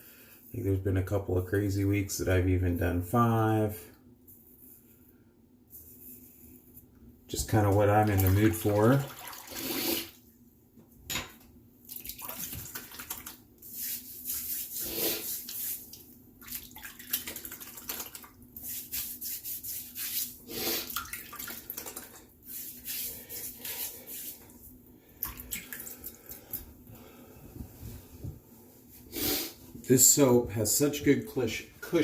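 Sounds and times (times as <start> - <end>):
water splashing: 7.6 - 10.1, 11.9 - 13.4.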